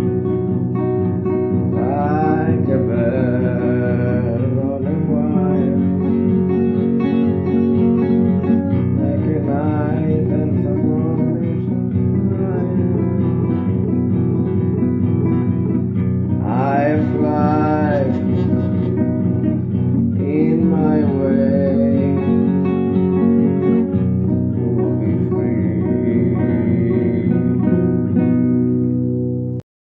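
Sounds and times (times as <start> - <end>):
acoustic guitar plucked and strummed: 0.0 - 29.6.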